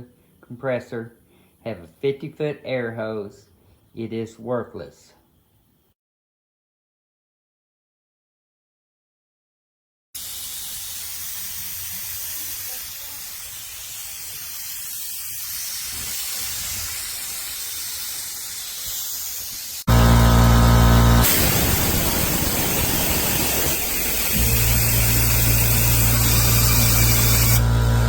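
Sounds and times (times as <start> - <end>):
compressed air hissing: 10.2 - 20.0, 21.1 - 27.8
air compressor motor running: 13.6 - 28.0.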